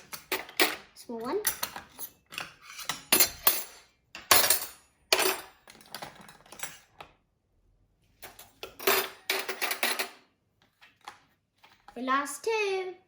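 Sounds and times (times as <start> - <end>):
metal cutlery clattering: 0.0 - 7.0, 8.3 - 10.2.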